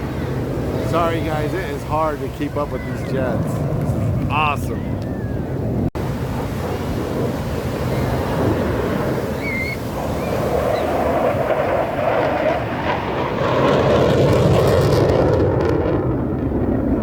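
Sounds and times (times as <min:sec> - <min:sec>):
jet engine rushing: 0:00.0 - 0:17.0
wind on microphone: 0:00.0 - 0:17.0.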